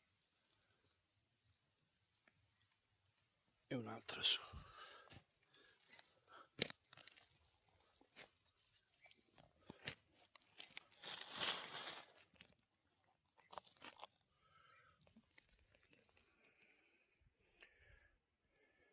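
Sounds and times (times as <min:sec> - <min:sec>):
dry leaves crunching: 0:10.5 - 0:12.5
leaves rustling: 0:10.8 - 0:12.4.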